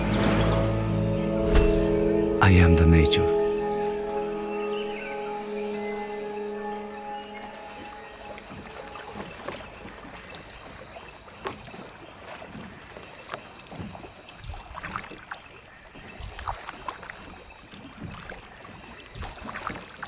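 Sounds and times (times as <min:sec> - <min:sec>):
water splashing and sloshing: 0:00.0 - 0:02.4, 0:03.5 - 0:20.0
high-pitched hum: 0:00.0 - 0:09.6.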